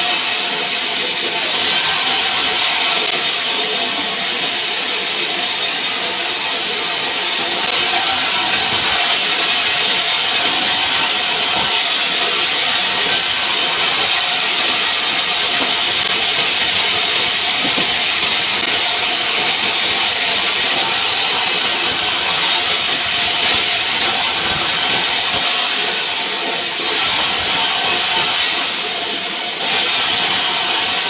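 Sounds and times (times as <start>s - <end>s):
saw blade cutting through log: 0.0s - 31.0s.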